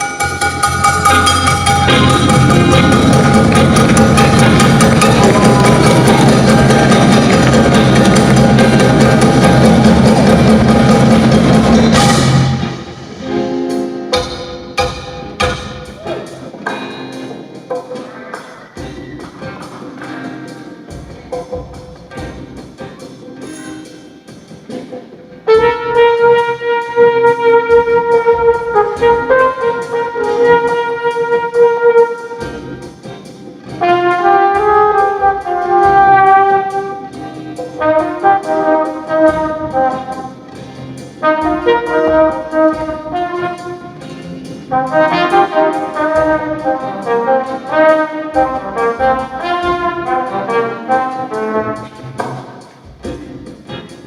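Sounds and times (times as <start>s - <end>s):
soft live band: 0.0s - 54.0s
flugelhorn solo: 25.5s - 32.4s, 33.8s - 37.1s, 44.7s - 52.0s.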